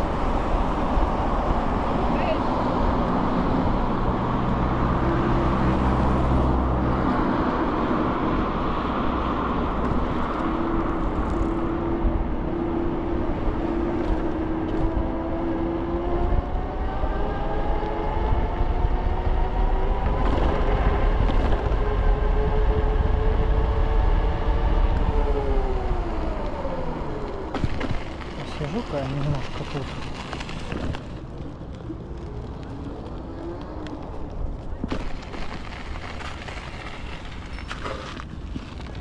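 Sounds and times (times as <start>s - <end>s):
wind and road noise: 0.0s - 39.0s
scooter motor whine rising: 21.9s - 28.3s.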